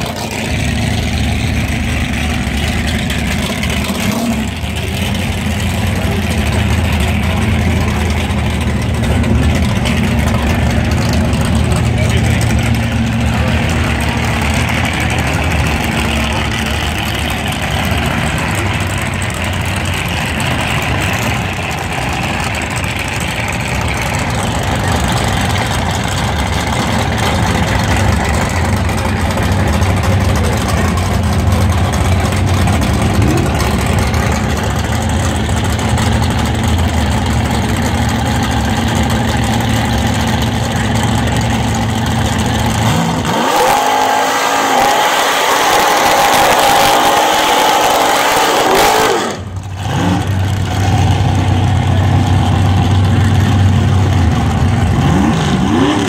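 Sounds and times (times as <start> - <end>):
drag car engines idling: 0.0 - 56.0
tyres spinning in a burnout: 0.0 - 56.0
engine revving high: 42.6 - 51.2, 54.9 - 56.0.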